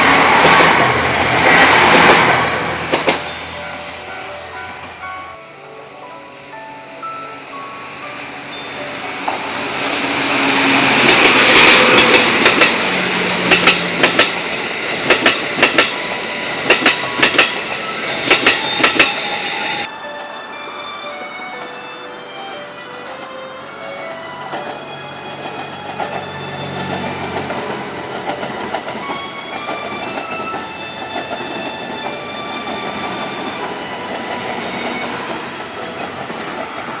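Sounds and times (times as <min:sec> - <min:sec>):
train passing: 0:00.0 - 0:37.0
wheels clacking over rail joints: 0:00.1 - 0:03.5, 0:09.1 - 0:19.8, 0:24.4 - 0:37.0.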